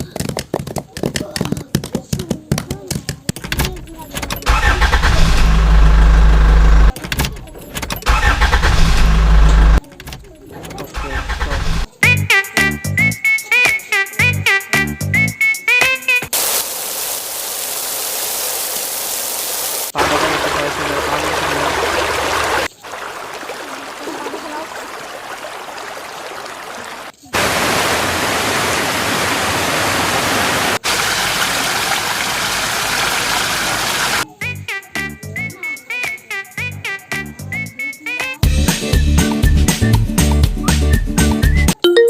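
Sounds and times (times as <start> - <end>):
low hum: 5.0 - 6.9.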